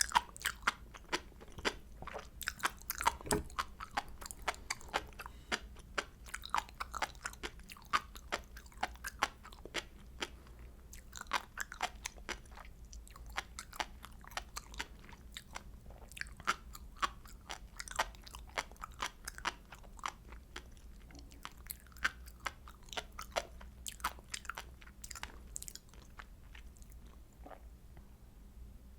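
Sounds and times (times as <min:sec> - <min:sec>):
crunchy chewing: 0:00.0 - 0:27.6.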